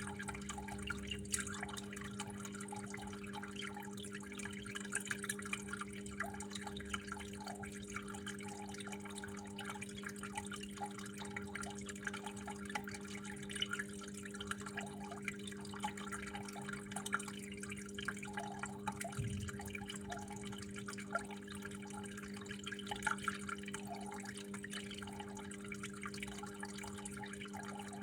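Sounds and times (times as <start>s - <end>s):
water drips and splashes: 0.0s - 28.0s
water flowing and trickling: 0.0s - 28.0s
steady low hum: 18.9s - 22.0s.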